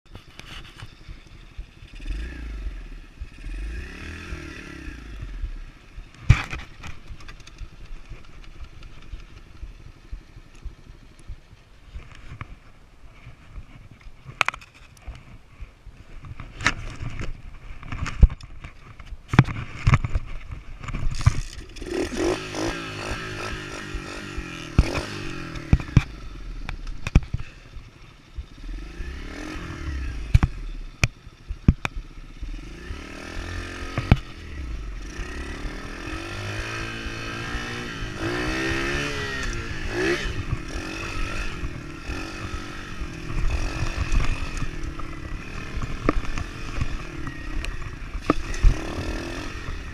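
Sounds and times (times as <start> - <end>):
motorbike engine revving: 0.9 - 11.4, 20.8 - 49.9
bike knocks and rattles: 6.1 - 15.4, 16.2 - 27.6.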